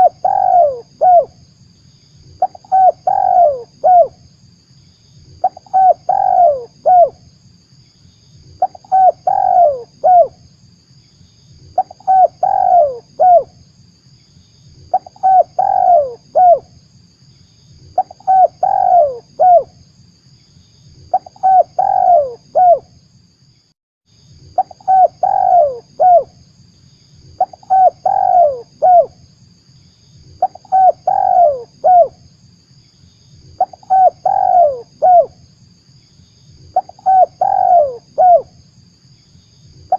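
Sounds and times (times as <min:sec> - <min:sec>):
dove cooing: 0:00.0 - 0:01.4, 0:02.4 - 0:04.2, 0:05.4 - 0:07.2, 0:08.6 - 0:10.4, 0:11.8 - 0:13.5, 0:14.9 - 0:16.7, 0:18.0 - 0:19.7, 0:21.1 - 0:22.8, 0:24.6 - 0:26.3, 0:27.4 - 0:29.2, 0:30.4 - 0:32.2, 0:33.6 - 0:35.4, 0:36.7 - 0:38.5
faint steady hiss: 0:00.0 - 0:39.9.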